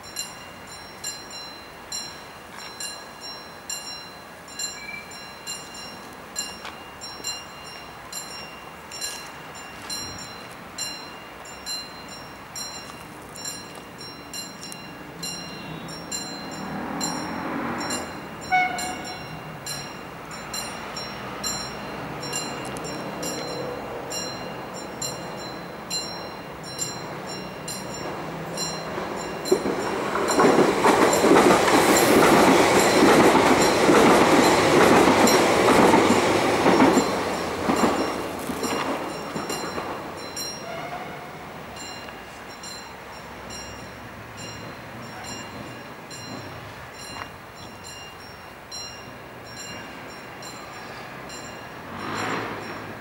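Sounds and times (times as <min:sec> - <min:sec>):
electric train passing: 0:00.0 - 0:53.0
electric train running: 0:16.1 - 0:40.6
train horn blast: 0:18.4 - 0:19.3, 0:40.6 - 0:41.5.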